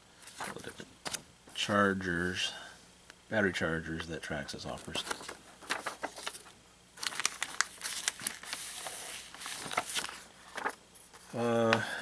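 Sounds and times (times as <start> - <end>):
paper crinkling: 4.8 - 11.8.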